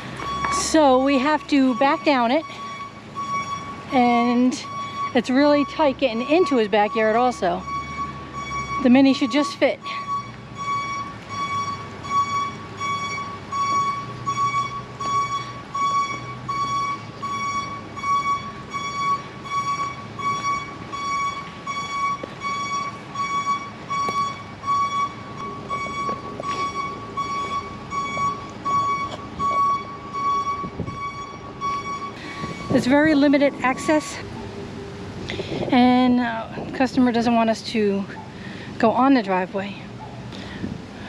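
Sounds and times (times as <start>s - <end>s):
truck reversing alarm beeping: 0.0s - 40.6s
low engine rumble: 0.0s - 41.0s.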